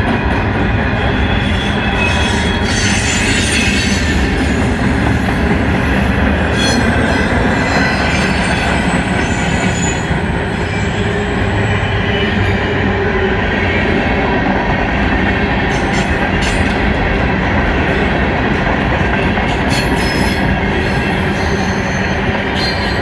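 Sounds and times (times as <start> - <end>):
steel wheels rumbling on rail: 0.0 - 23.0
high wheel squeal: 0.9 - 4.6, 5.8 - 13.1, 19.7 - 23.0.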